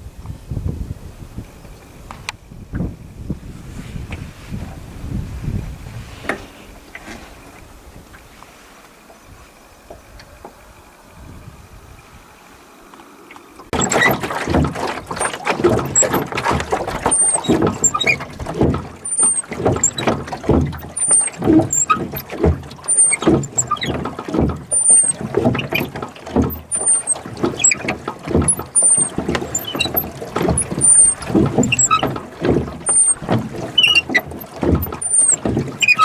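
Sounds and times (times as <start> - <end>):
oars splashing and knocking: 1.4 - 11.3, 12.2 - 36.0
oarlock squeak: 13.7 - 36.0.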